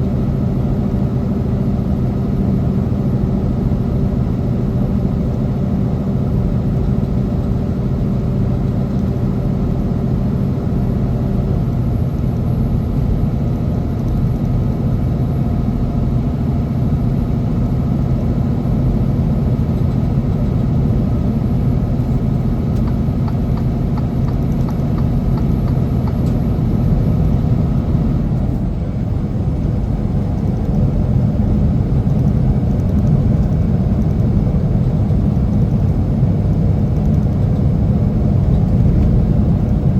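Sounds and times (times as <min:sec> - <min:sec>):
road noise rumble: 0:00.0 - 0:39.9
truck diesel engine running: 0:00.0 - 0:39.9.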